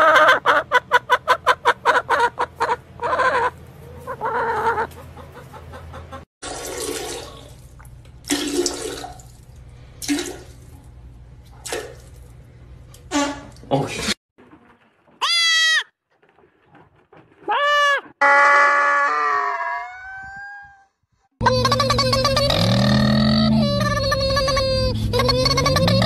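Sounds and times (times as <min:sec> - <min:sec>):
hen clucking: 0:00.0 - 0:06.3
toilet flushing: 0:06.4 - 0:09.4.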